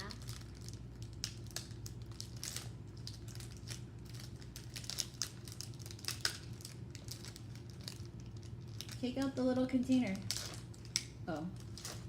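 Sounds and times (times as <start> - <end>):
snack wrapper crinkling: 0.0 - 9.5.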